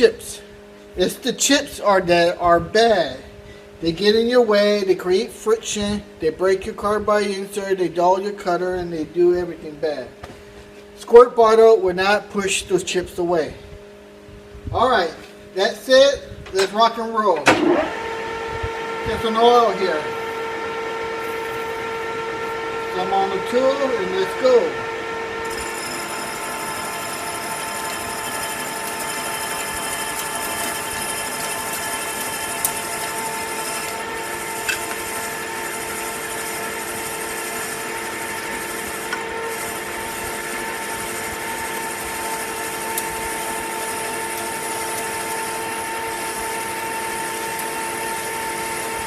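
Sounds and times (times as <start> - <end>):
metal lathe cutting whine: 17.5 - 49.0.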